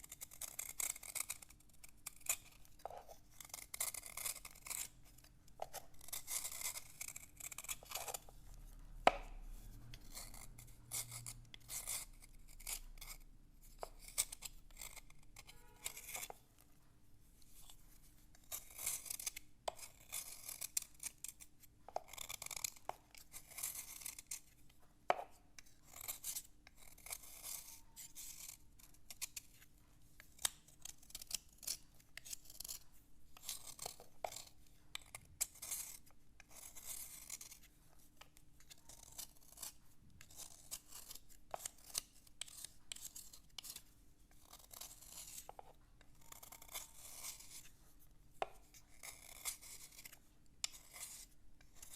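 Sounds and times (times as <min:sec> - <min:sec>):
slate being scratched: 0:09.1 - 0:16.5, 0:38.6 - 0:47.8.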